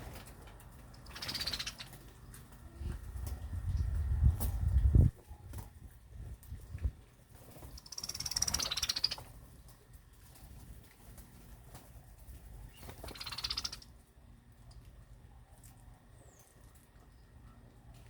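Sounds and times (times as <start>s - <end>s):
small birds chirping: 0.0s - 4.3s, 7.5s - 9.9s, 12.2s - 18.0s.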